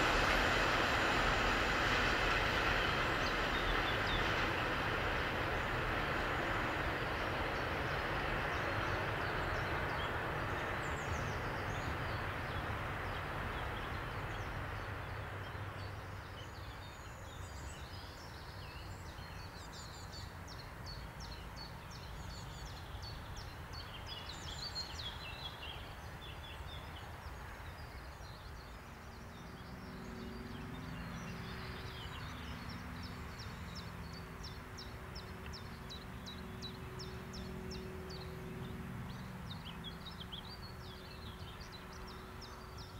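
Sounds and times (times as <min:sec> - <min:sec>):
train rushing past: 0:00.0 - 0:17.6, 0:28.6 - 0:42.9
songbirds chirping: 0:01.1 - 0:42.9.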